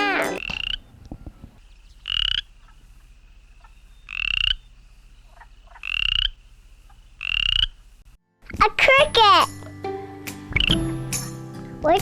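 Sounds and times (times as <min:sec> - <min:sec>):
cricket chirps: 0:01.6 - 0:08.1, 0:10.6 - 0:10.9
faint steady cricket trill: 0:01.6 - 0:08.2.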